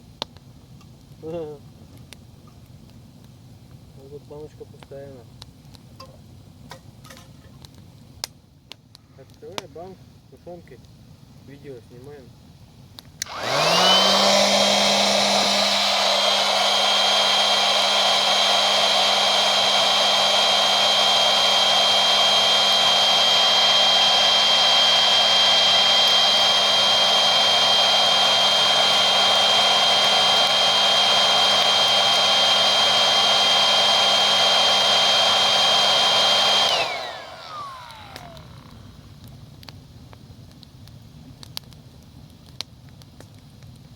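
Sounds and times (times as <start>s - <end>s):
electric air pump running: 13.2s - 39.2s.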